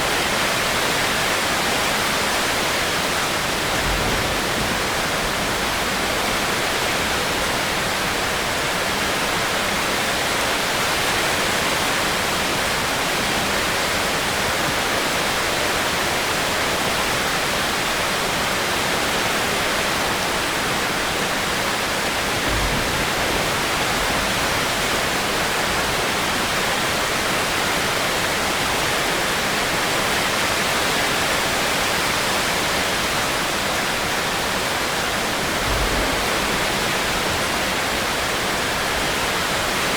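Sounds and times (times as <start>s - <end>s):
heavy rain hiss: 20.4s - 39.9s
faint low rumbles: 35.3s - 39.2s.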